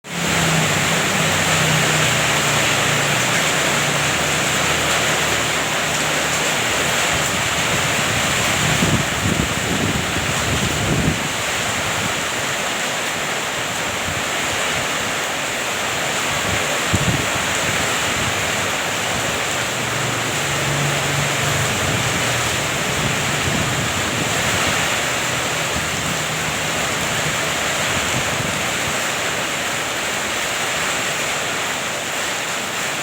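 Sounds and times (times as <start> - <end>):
heavy rain pouring: 0.0 - 33.0
wind buffeting microphone: 0.3 - 12.6, 15.9 - 29.4.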